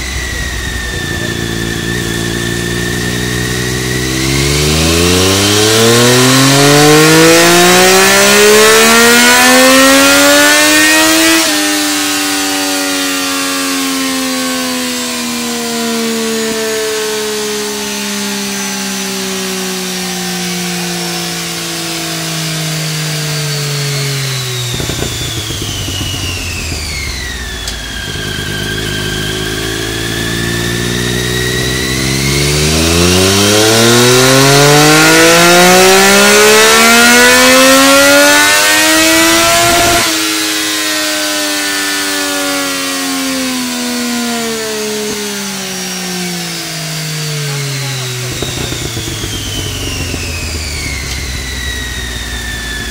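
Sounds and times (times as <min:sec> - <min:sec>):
thin high whine: 0:00.0 - 0:06.5, 0:23.3 - 0:34.7
motorcycle engine revving: 0:00.0 - 0:52.9.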